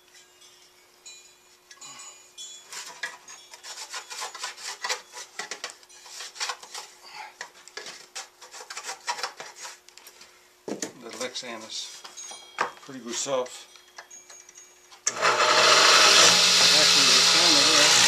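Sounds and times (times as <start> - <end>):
hand scraping strokes: 1.4 - 10.4.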